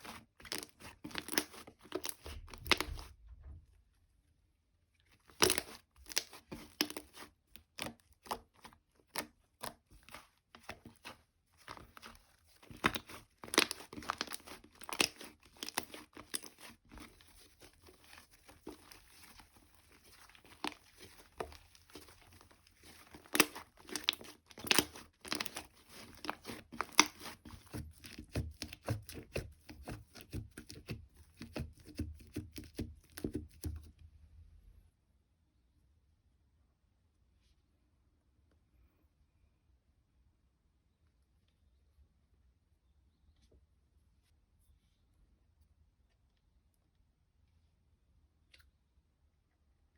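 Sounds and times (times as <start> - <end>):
slime squishing and crackling: 0.0 - 3.1, 5.1 - 33.9.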